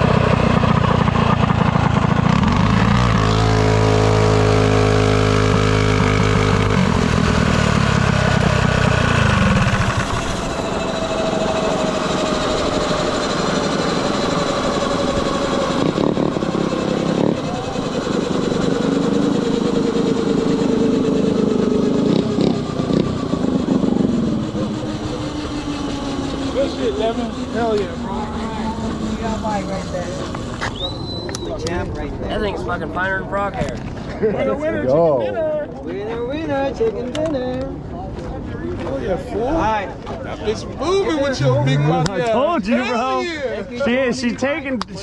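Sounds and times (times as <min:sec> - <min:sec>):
nearby minibike engine running: 0:00.0 - 0:31.8
distant engines revving: 0:00.0 - 0:33.3.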